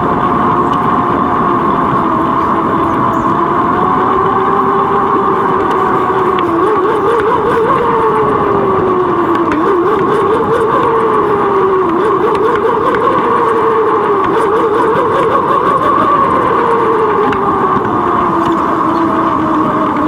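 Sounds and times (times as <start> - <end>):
bicycle riding noise: 0.0 - 20.0.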